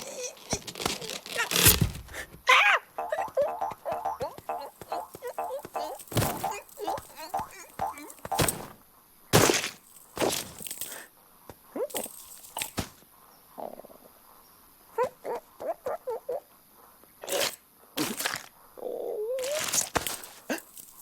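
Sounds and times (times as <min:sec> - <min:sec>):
squeaky chirps: 0:02.5 - 0:08.8
cartoon knocks: 0:03.0 - 0:08.7.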